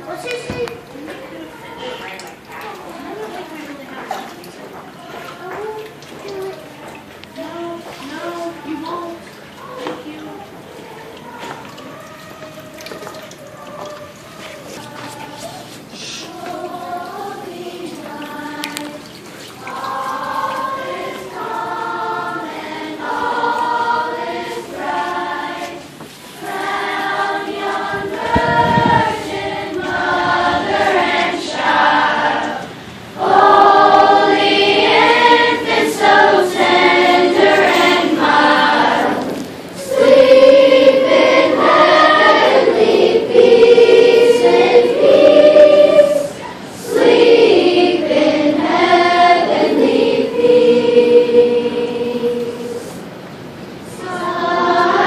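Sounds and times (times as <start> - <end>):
choir singing sustained notes: 15.9 - 53.0, 53.9 - 55.0.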